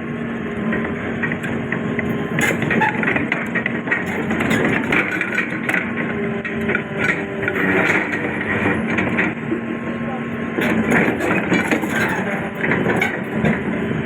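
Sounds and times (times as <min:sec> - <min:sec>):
diesel machinery running: 0:00.0 - 0:14.0
metallic clanks and rattling: 0:02.3 - 0:09.4, 0:10.6 - 0:13.8.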